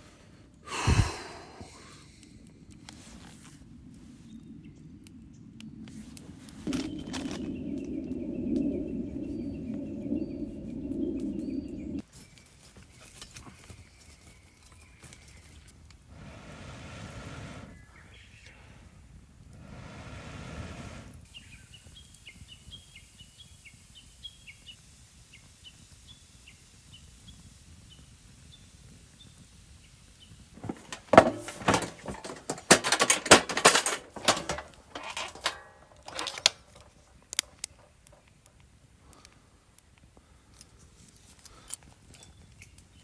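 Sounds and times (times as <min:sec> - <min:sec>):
small bird chirping: 0:06.7 - 0:12.6, 0:21.2 - 0:30.5
clattering and knocking: 0:30.6 - 0:37.0.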